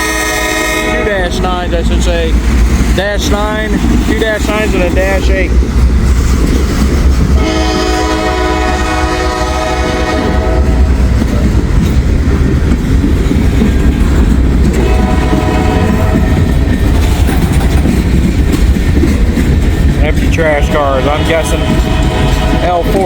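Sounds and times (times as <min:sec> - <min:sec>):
locomotive air horn blasts: 0:00.0 - 0:01.3, 0:07.4 - 0:11.0, 0:14.7 - 0:16.5, 0:20.3 - 0:23.0
rumble of engines and wheels: 0:01.0 - 0:23.0.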